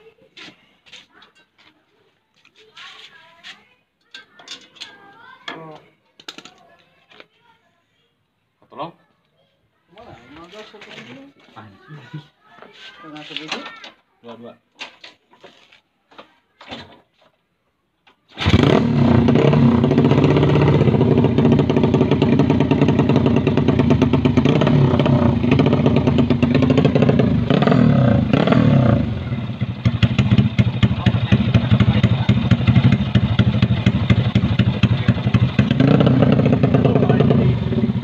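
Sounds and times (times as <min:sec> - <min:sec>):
motorcycle engine revving: 0:18.4 - 0:38.0.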